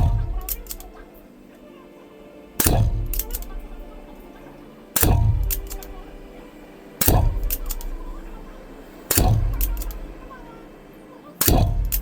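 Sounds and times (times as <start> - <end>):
air pistol shots: 0.0 - 1.0, 2.6 - 4.2, 5.0 - 6.3, 7.0 - 8.5, 9.1 - 10.4, 11.4 - 12.0.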